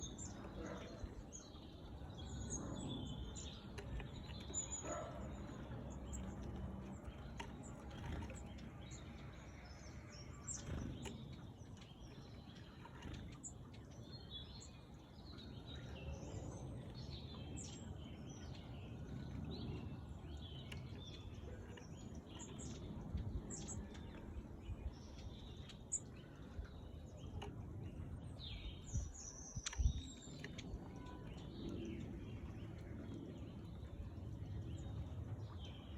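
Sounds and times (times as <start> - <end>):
birds chirping: 0.0 - 35.9.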